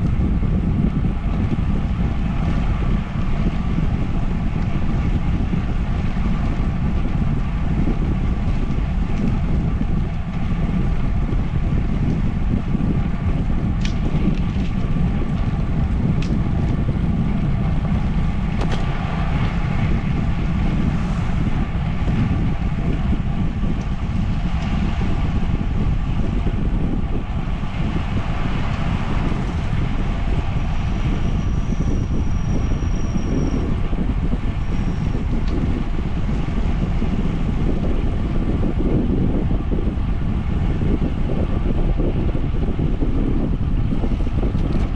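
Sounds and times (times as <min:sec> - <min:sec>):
wind buffeting microphone: 0:00.0 - 0:44.9
thin high whistle: 0:30.8 - 0:33.6.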